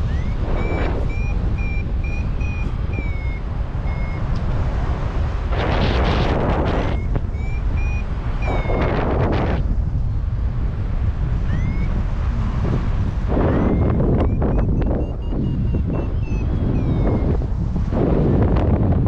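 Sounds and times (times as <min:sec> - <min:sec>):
variometer beeping high tones: 0:00.0 - 0:04.4, 0:06.6 - 0:09.5, 0:11.4 - 0:12.0, 0:13.3 - 0:17.5
wind rumble on microphone: 0:00.0 - 0:19.0.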